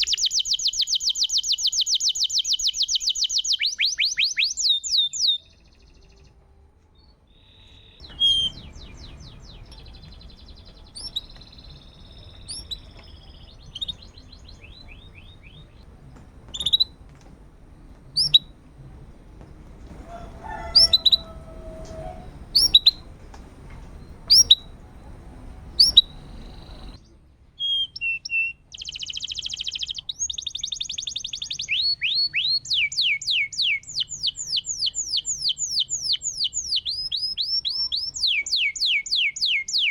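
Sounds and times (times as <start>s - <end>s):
canary singing: 0.0s - 6.4s, 7.3s - 27.0s, 27.6s - 39.9s
faint low hum: 5.4s - 27.6s.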